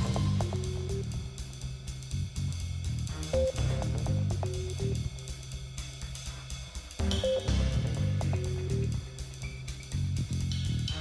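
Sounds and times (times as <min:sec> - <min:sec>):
music with bass guitar and drums: 0:00.0 - 0:11.0.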